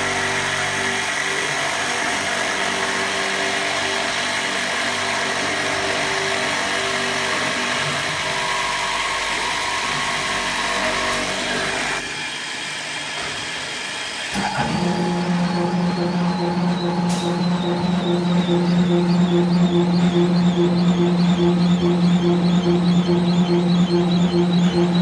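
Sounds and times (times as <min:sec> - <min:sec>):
drilling machine running: 0:00.0 - 0:25.0
low hum: 0:14.6 - 0:25.0.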